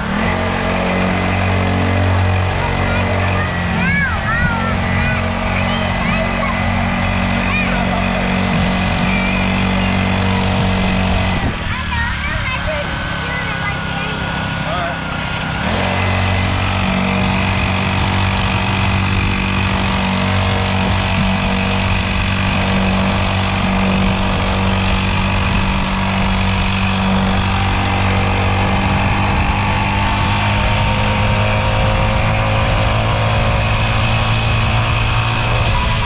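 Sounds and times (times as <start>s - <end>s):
dirt bike engine running: 0.0s - 36.0s.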